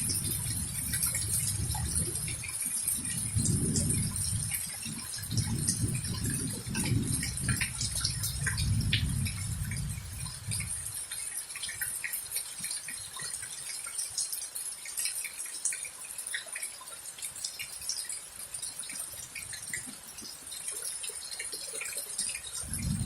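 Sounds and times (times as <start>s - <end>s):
thunder rumble: 0.0s - 4.6s, 5.2s - 10.8s, 22.6s - 23.0s
rain hiss: 0.0s - 23.0s.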